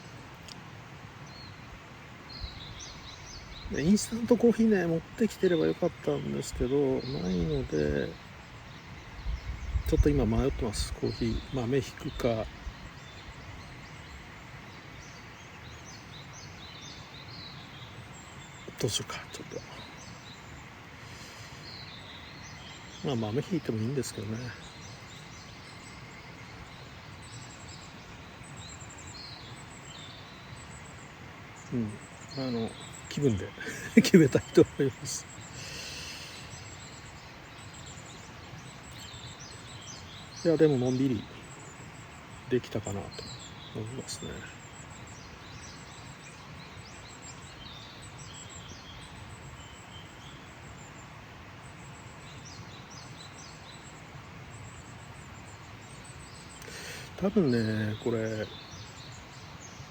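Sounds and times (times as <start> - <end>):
small birds chirping: 0.0 - 59.9
steady outdoor hiss: 0.0 - 59.9
high bird chirps: 31.6 - 50.4, 55.0 - 59.3.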